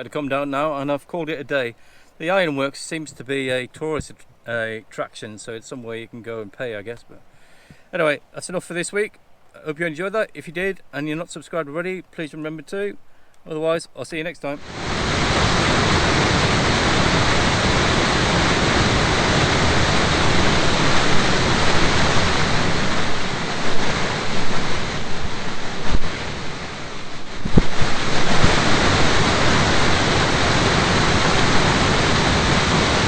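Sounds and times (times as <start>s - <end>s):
waterfall rushing: 14.6s - 33.0s.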